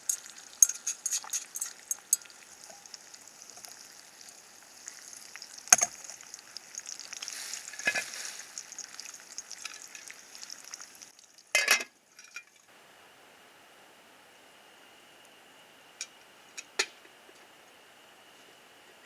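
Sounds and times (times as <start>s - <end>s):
food sizzling in a frying pan: 0.0s - 12.6s.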